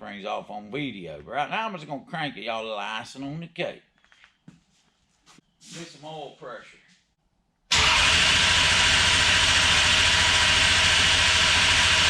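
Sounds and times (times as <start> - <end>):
engine starter cranking: 7.7 - 12.0.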